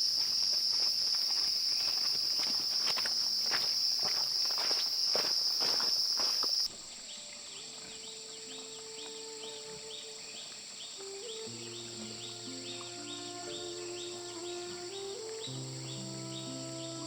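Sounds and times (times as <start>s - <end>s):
footsteps walking: 0.0s - 6.8s
insect chorus chirping: 0.0s - 17.0s
loud insect drone: 0.0s - 17.0s
soft sustained music notes: 7.0s - 17.0s.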